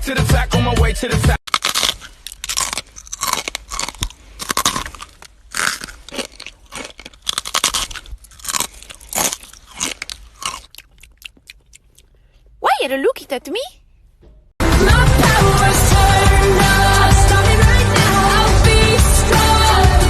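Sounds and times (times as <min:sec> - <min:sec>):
crunchy chewing: 0:01.5 - 0:12.6.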